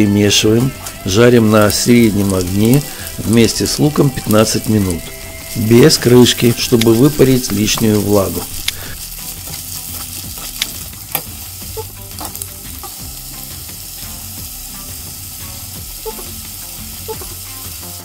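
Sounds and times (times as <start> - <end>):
mushrooms sizzling in a pan: 0.0 - 18.0
utensil clicking against pan: 6.3 - 13.0.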